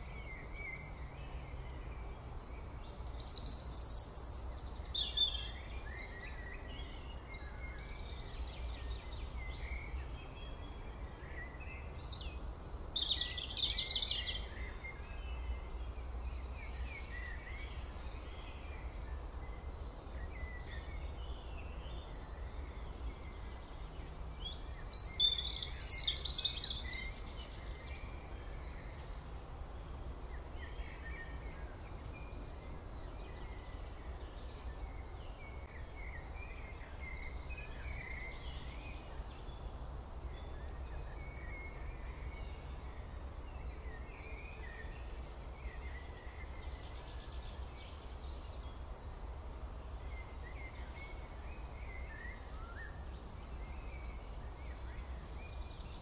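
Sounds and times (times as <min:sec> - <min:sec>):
birds chirping and singing: 0:02.9 - 0:10.7, 0:23.8 - 0:29.4.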